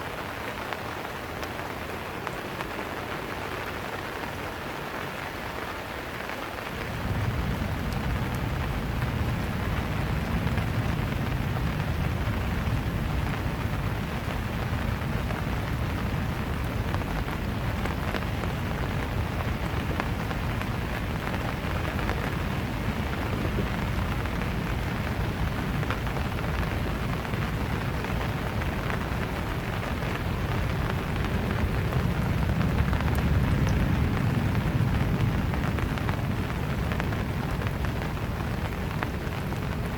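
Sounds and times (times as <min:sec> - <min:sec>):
rain pattering on surfaces: 0:00.0 - 0:39.9
deep low rumble: 0:06.8 - 0:17.7, 0:30.5 - 0:37.9.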